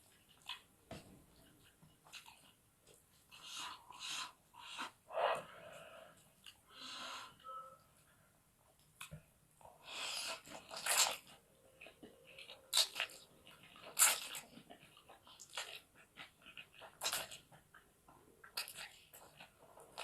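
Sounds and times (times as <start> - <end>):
person chewing and crunching food: 1.4 - 5.0, 8.9 - 20.0.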